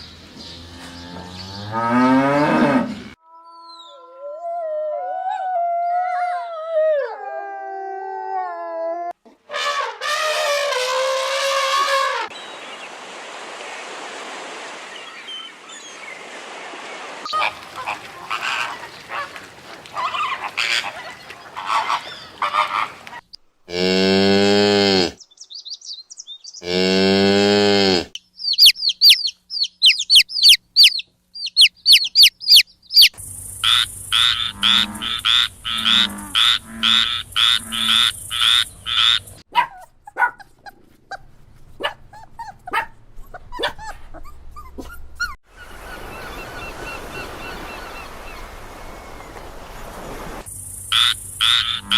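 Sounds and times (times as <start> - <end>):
cattle mooing: 0.6 - 3.2, 23.7 - 25.2, 26.6 - 28.1, 34.3 - 37.9
rapid high chirping: 28.2 - 34.6
rhythmic repeated animal calls: 28.4 - 39.4, 50.8 - 51.9.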